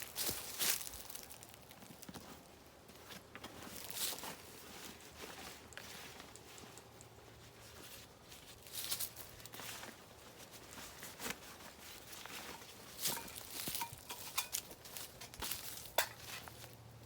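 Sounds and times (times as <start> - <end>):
rustling in dry leaves: 0.0 - 17.0.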